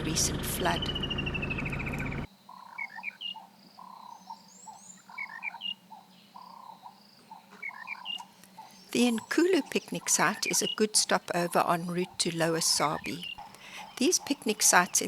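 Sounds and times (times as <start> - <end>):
vehicle noise: 0.0 - 2.3
animal calls with rising chirps: 0.6 - 12.2.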